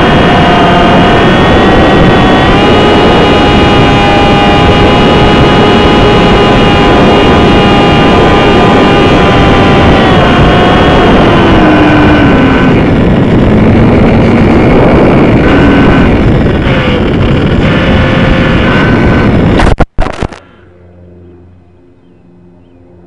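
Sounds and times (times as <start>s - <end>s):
electric motor propeller whining: 0.0s - 23.0s
wind rush: 0.0s - 23.0s.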